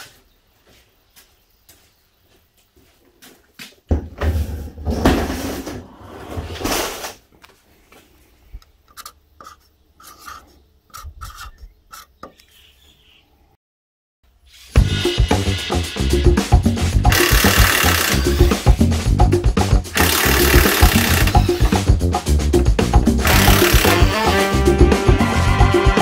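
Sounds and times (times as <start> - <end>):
panel scraping on workbench: 4.3 - 7.2, 9.0 - 12.1
marker squeaking on metal: 8.8 - 12.6, 20.9 - 21.9, 23.4 - 24.5.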